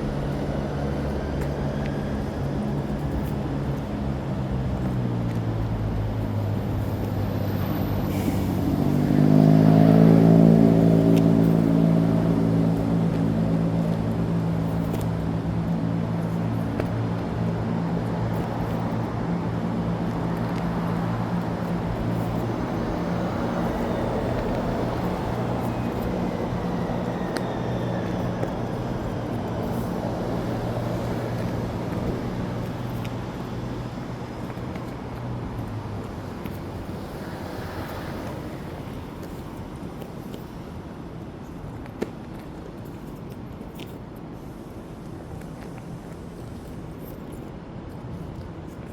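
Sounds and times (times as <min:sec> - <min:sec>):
large vehicle engine running: 0:00.0 - 0:37.0
hiss of passing cars: 0:06.4 - 0:15.3, 0:16.0 - 0:41.6, 0:44.2 - 0:48.5.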